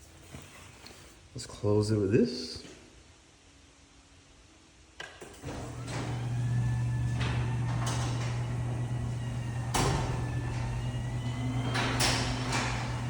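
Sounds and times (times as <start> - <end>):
garage door clattering in tracks: 5.4 - 13.0
garage door opener motor humming: 5.4 - 13.0.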